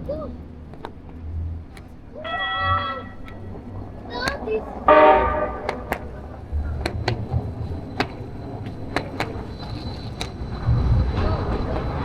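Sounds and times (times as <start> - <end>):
sharp clicks or taps: 1.7 - 2.0, 3.2 - 4.6, 5.6 - 7.4, 8.0 - 10.4.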